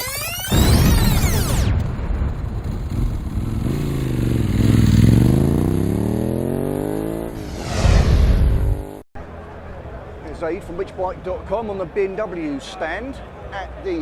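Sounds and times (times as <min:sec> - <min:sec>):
motorcycle engine revving: 0:02.5 - 0:07.5, 0:08.6 - 0:09.0.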